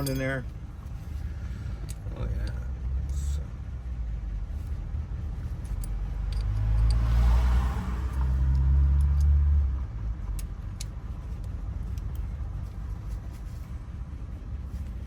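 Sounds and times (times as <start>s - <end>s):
vehicle passing by: 4.8s - 10.2s.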